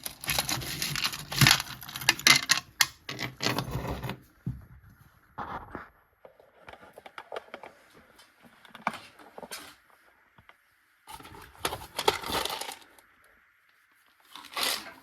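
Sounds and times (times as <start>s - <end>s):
hands clicking and scraping object: 0.0s - 4.2s.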